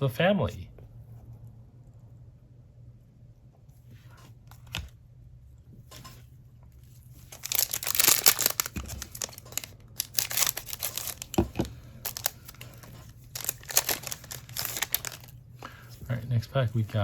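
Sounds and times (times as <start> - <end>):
wrapper tearing and crinkling: 7.2 - 15.4.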